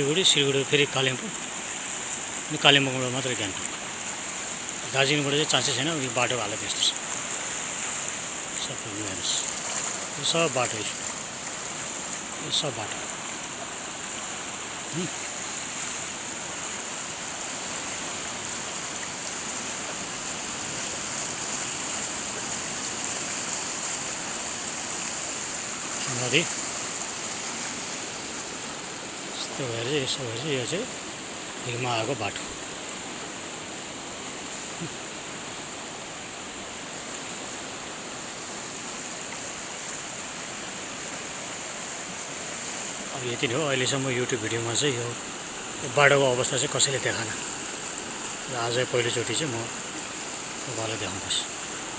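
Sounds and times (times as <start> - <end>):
high-pitched hiss: 0.0 - 19.7, 20.3 - 40.2
flooded river rushing: 0.0 - 51.9.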